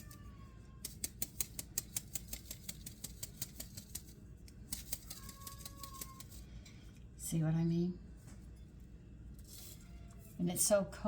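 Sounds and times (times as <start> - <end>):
flour sifter clicking: 0.8 - 6.4
faint thin squeak: 9.4 - 10.4.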